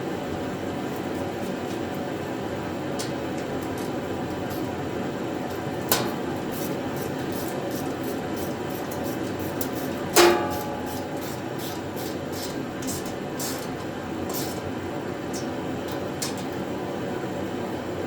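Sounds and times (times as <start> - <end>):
steady hiss: 5.6 - 14.7.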